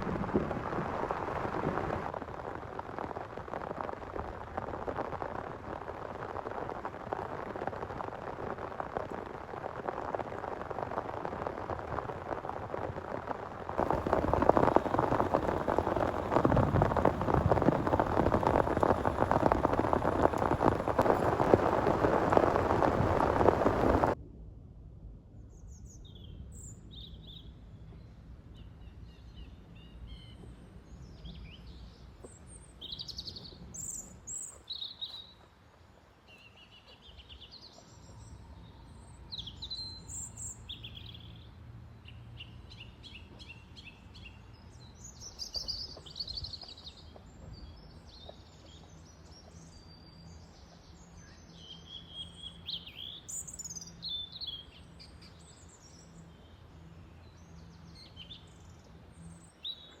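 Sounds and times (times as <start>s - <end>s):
low steady rumble: 0.0s - 32.7s.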